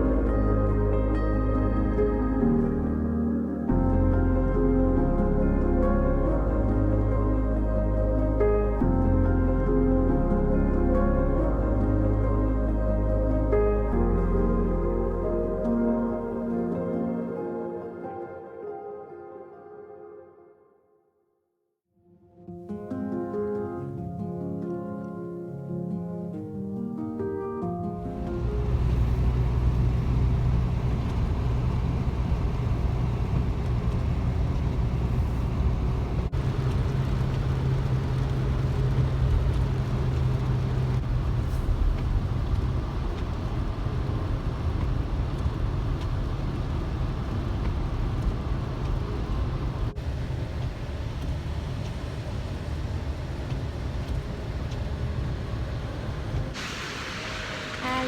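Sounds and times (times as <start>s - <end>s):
road noise: 0.0s - 16.7s, 28.1s - 58.0s
car engine hum: 28.1s - 56.6s.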